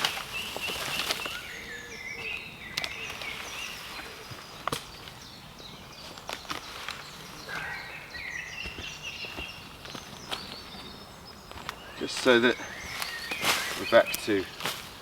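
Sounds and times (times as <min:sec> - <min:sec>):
sticks and twigs cracking: 0:00.0 - 0:01.5, 0:02.7 - 0:03.5, 0:04.3 - 0:05.2, 0:11.4 - 0:15.0
songbird chirping: 0:00.0 - 0:15.0.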